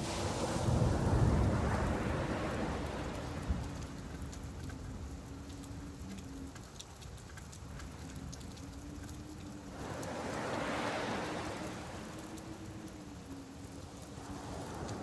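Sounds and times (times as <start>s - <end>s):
wave washing on shore: 0.0s - 5.1s, 9.0s - 15.0s
patter of raindrops: 0.0s - 15.0s
steady rain: 0.0s - 15.0s.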